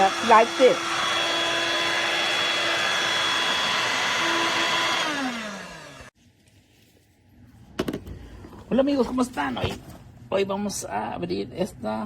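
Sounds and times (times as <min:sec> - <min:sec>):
stick vacuum whining: 0:00.0 - 0:06.1.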